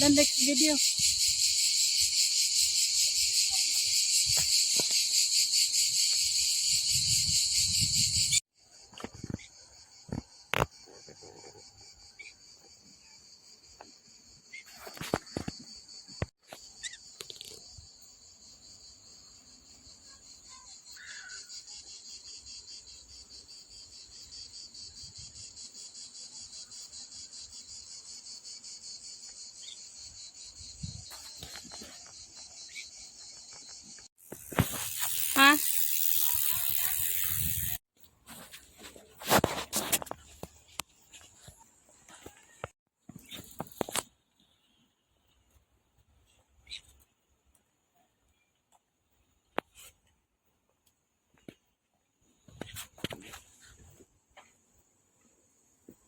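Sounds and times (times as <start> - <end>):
night insects chirring: 0.0 - 37.8.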